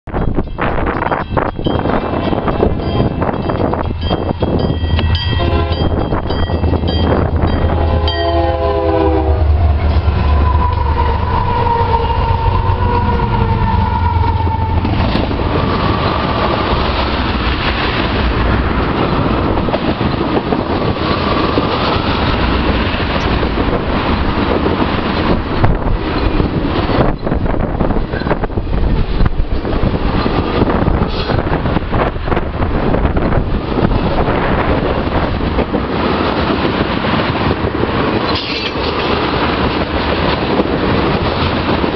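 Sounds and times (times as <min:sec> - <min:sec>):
diesel locomotives rumbling: 0:00.0 - 0:41.9
locomotive horn: 0:05.0 - 0:06.2, 0:07.4 - 0:16.8
train wheels clattering over rail joints: 0:33.3 - 0:41.9.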